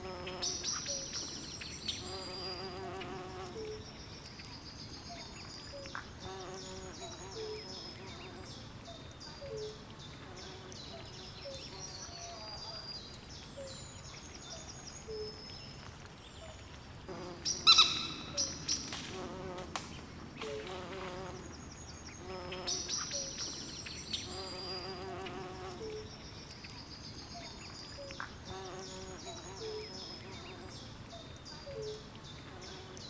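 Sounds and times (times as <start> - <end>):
insects calling: 17.5 - 19.4.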